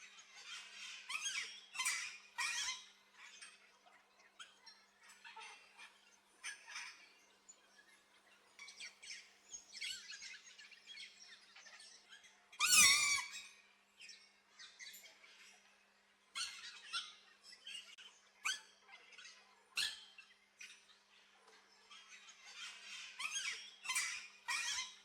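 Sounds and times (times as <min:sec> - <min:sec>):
birds chirping and squeaking: 0:00.0 - 0:25.0
harsh bird squawk: 0:12.6 - 0:13.3.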